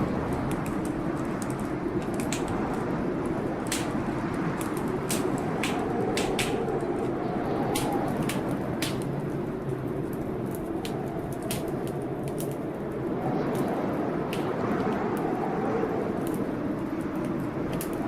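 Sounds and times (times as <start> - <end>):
low rush of storm: 0.0 - 18.0
wood fire crackling: 0.0 - 18.0
sharp pops of fire: 0.3 - 6.9, 7.6 - 9.3, 10.8 - 12.6.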